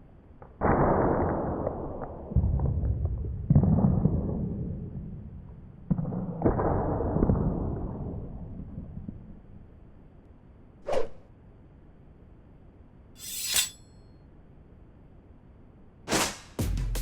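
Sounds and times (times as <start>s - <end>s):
heavy sword slashes and impacts: 13.2s - 13.8s.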